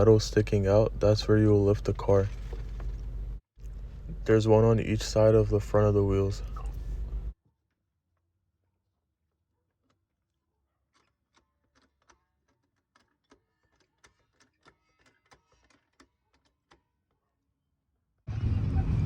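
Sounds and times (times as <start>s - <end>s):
faint irregular clicks: 10.9s - 17.2s.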